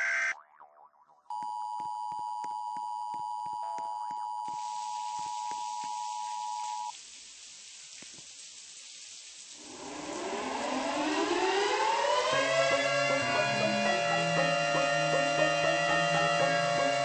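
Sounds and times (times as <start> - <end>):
electronic beep tone: 0.0 - 0.5, 1.3 - 6.9
faint hiss: 4.5 - 17.0.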